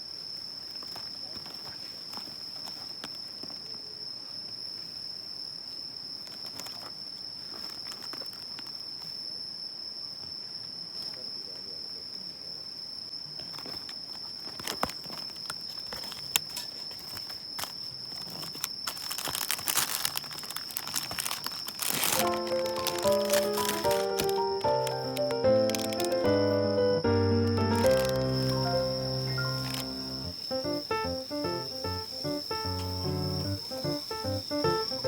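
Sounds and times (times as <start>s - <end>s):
insects droning: 0.0s - 35.0s
clicks and rustling: 13.6s - 26.4s, 27.5s - 28.8s, 29.4s - 30.0s.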